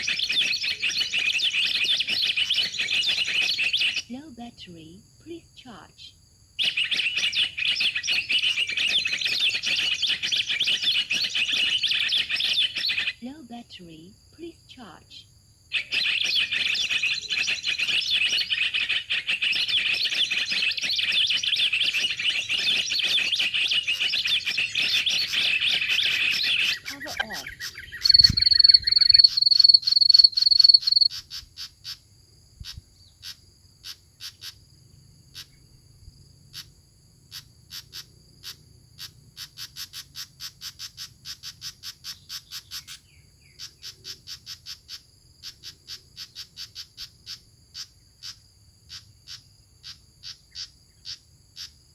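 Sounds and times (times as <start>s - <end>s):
insects chirring: 0.0s - 51.9s
loud high bird pips: 15.8s - 31.1s.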